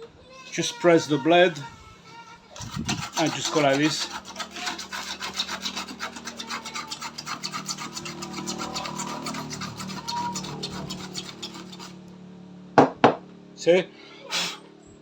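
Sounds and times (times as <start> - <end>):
knife scraping plastic pipe: 2.6 - 12.1.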